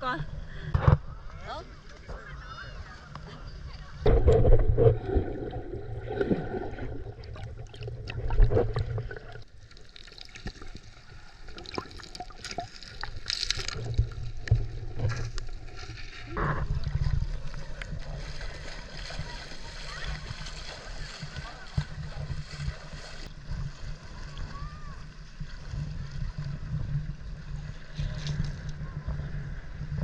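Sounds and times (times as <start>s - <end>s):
water splashing and sloshing: 3.8s - 30.0s.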